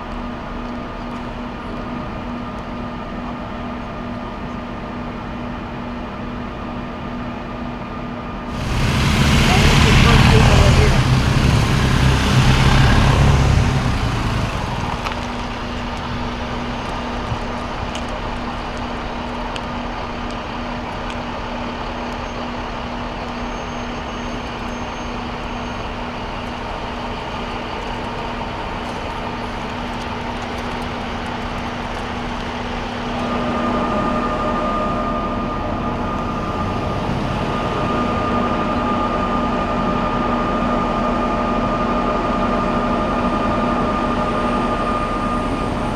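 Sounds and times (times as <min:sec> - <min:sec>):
heavy vehicles passing: 0:08.5 - 0:23.3, 0:23.9 - 0:41.4, 0:42.9 - 0:45.9
constant hum: 0:08.5 - 0:23.4.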